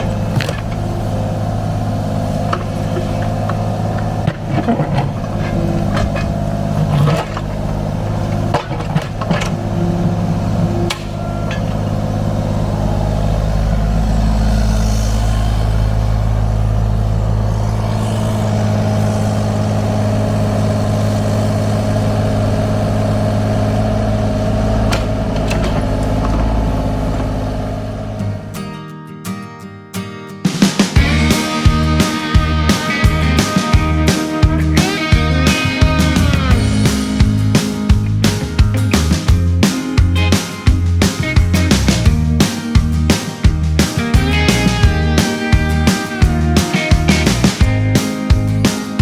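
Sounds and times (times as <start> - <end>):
sharp knocks and clanks: 0.0 - 1.0, 2.5 - 11.9, 24.4 - 28.6, 35.9 - 49.0
excavator diesel engine running: 0.0 - 28.6, 31.0 - 49.0.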